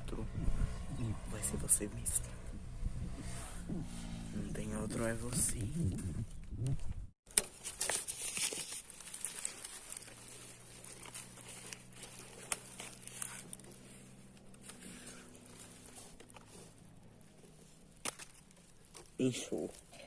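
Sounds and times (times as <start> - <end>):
leaves rustling and crackling: 7.3 - 20.0.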